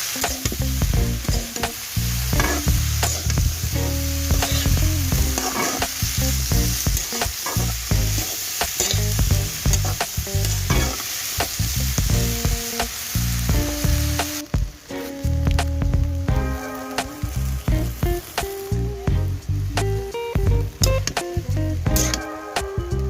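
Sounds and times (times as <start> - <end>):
vegetables sizzling in oil: 0.0 - 23.0
spatula scraping a pan: 4.4 - 4.8, 5.4 - 6.1.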